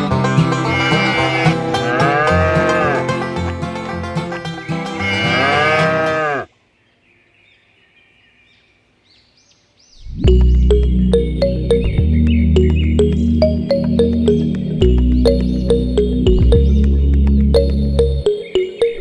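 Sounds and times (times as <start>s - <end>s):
plucked-string music: 0.0s - 6.2s, 10.2s - 19.0s
cow mooing: 0.6s - 3.1s, 5.0s - 6.5s.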